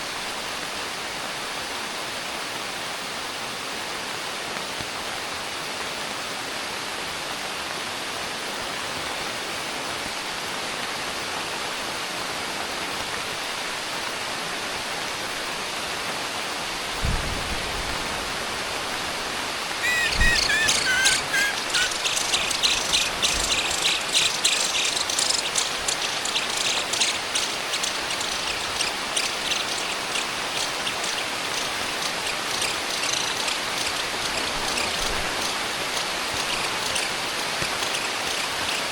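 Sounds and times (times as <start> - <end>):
heavy rain: 0.0 - 38.9
birds chirping: 19.8 - 38.9.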